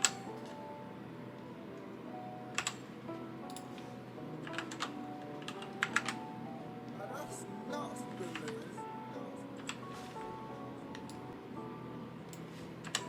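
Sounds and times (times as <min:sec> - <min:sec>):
computer keyboard keys clicking: 0:00.0 - 0:00.5, 0:02.6 - 0:02.9, 0:04.4 - 0:06.2, 0:08.2 - 0:08.7, 0:09.6 - 0:10.0, 0:12.3 - 0:13.0
quiet background music: 0:00.0 - 0:13.0.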